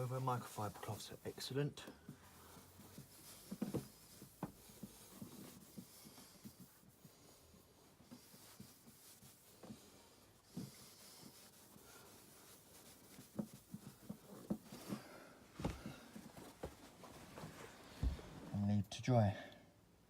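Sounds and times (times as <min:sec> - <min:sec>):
cloth rubbing on plastic: 0:00.0 - 0:18.6
light knocks and handling: 0:02.9 - 0:05.6.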